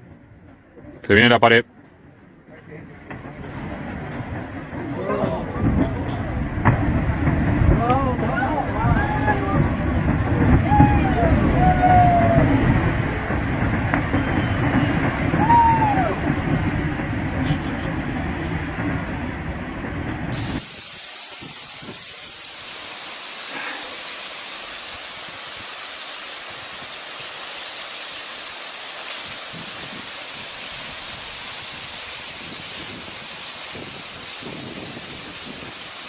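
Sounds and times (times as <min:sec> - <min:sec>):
steady rushing hiss: 0:03.0 - 0:36.0.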